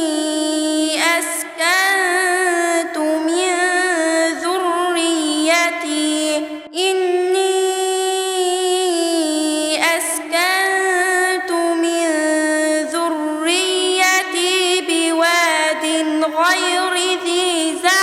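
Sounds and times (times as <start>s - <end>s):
woman reciting in melodic chant: 0.0s - 18.0s.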